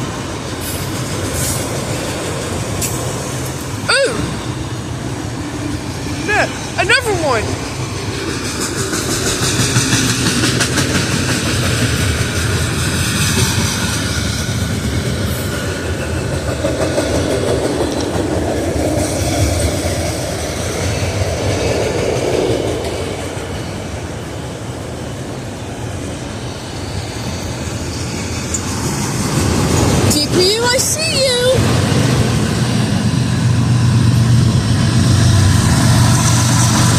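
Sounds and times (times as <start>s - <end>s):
freight train rumbling: 0.0s - 36.9s
wheels clattering over rail joints: 7.5s - 26.8s, 27.6s - 36.9s.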